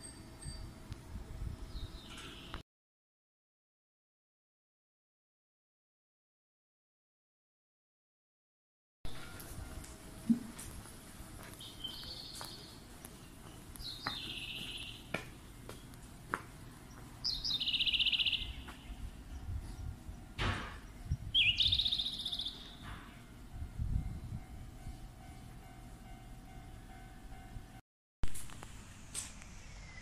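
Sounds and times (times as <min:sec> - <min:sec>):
bird trilled calls: 0:17.3 - 0:18.7, 0:21.4 - 0:22.8.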